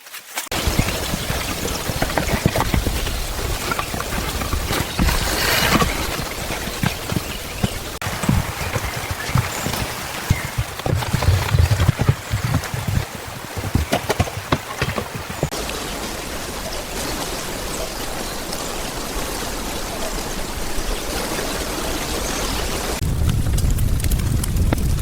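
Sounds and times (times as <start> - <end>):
running water rushing: 0.2 - 23.0.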